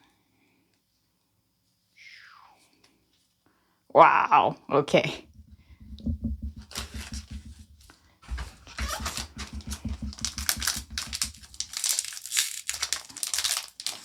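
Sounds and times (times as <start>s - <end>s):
plastic packaging crinkling: 6.6s - 7.6s, 8.2s - 14.0s.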